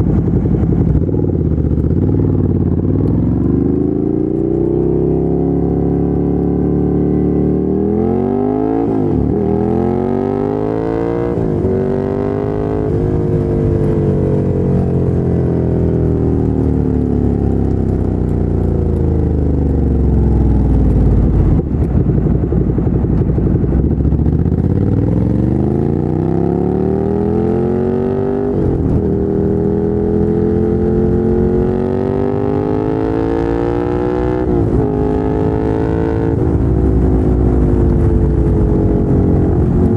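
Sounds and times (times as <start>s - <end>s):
motorcycle engine upshifting: 0.0s - 6.8s.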